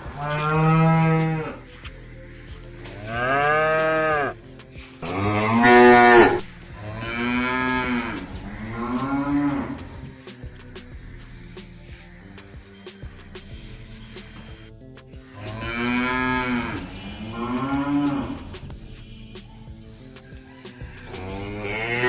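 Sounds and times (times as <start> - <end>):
cattle mooing: 0.1 - 1.7, 3.0 - 4.4, 5.0 - 10.0, 15.4 - 18.6, 21.2 - 22.0.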